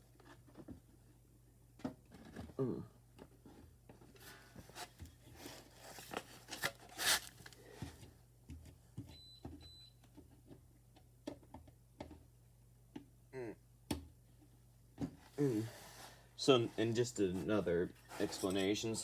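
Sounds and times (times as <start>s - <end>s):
rustling and scraping: 3.2s - 8.1s, 15.2s - 19.0s.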